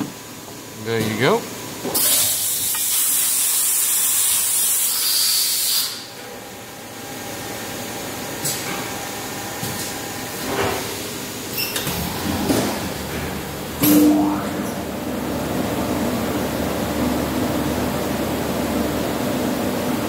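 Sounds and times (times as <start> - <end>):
machine humming: 11.0 - 20.0.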